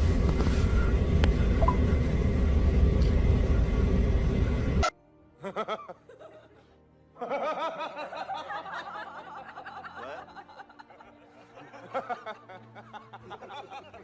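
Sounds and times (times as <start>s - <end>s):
loud rumble: 0.0s - 4.8s.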